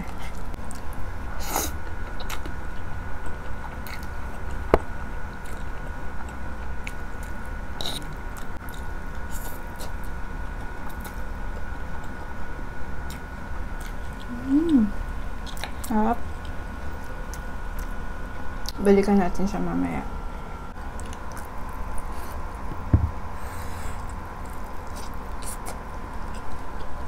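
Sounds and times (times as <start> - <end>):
person humming: 14.3 - 15.0
chewing noodles: 23.8 - 27.0.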